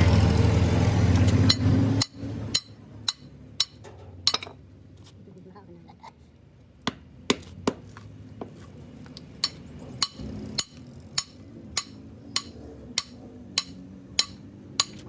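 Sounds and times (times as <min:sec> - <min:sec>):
hammer tapping on metal: 0:01.5 - 0:04.6, 0:09.4 - 0:15.0.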